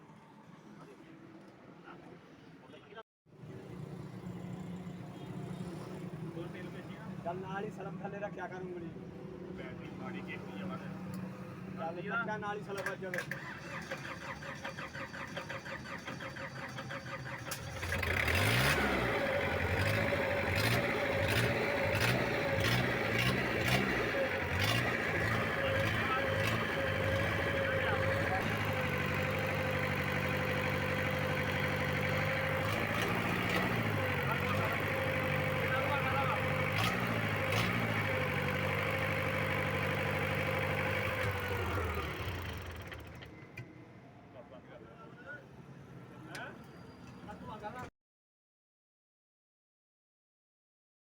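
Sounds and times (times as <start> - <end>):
diesel generator engine running: 13.6 - 43.3.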